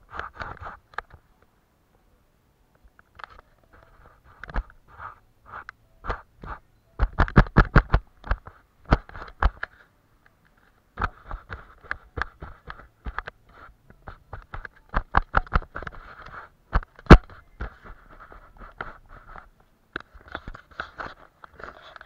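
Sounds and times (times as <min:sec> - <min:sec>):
brush scratching on paper: 0:03.8 - 0:06.6, 0:11.0 - 0:14.7, 0:17.2 - 0:19.5
sharp taps and clicks: 0:05.6 - 0:09.7, 0:11.0 - 0:18.0.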